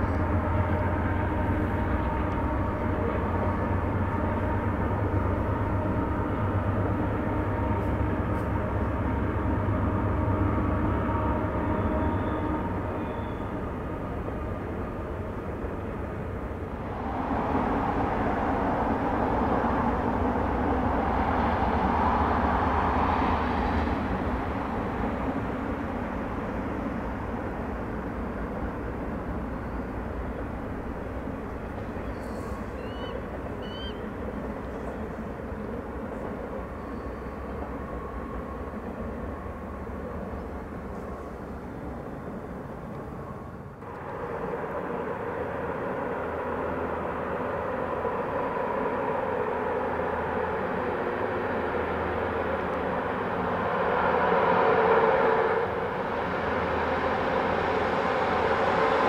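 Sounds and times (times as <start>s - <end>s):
distant freight train rumbling: 0.0s - 59.0s
faint bird chirps: 11.8s - 13.5s, 32.0s - 34.1s
loud vehicle noise: 43.4s - 59.0s.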